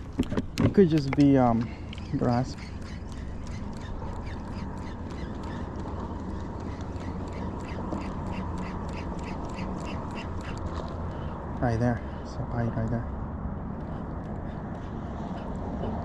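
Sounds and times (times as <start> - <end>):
wind and water rumble: 0.0 - 16.0
fishing reel ticking: 1.3 - 10.7.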